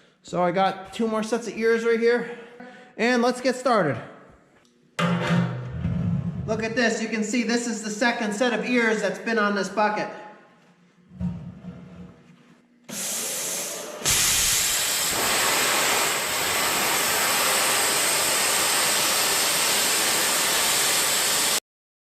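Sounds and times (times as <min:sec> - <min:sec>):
cutting torch hissing: 0:12.9 - 0:21.6.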